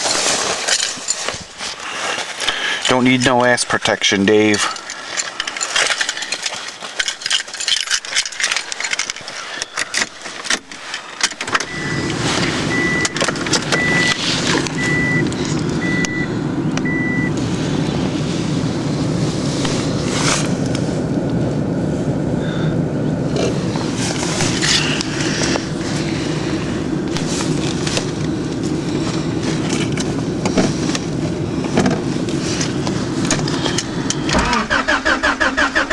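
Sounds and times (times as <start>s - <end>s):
keys jingling and clicks: 0.0s - 1.4s, 4.4s - 11.8s
car engine idling: 0.0s - 35.9s
warning chime beeping: 11.6s - 14.2s, 14.8s - 17.4s.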